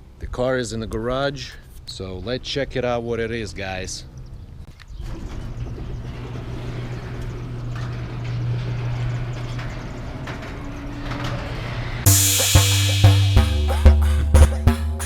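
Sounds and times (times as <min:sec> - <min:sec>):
low mechanical hum: 0:04.8 - 0:12.1
music with drums: 0:12.1 - 0:15.0.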